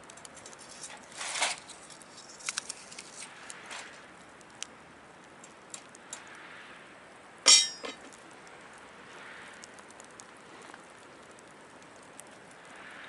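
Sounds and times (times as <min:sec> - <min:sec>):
wood fire crackling: 0:00.0 - 0:13.0
metallic clink on fire pit: 0:07.5 - 0:08.1.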